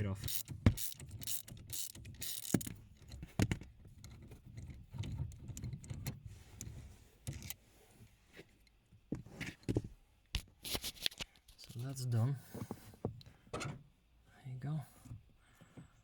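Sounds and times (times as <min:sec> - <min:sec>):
ratchet clicking and rattling: 0:00.1 - 0:03.2.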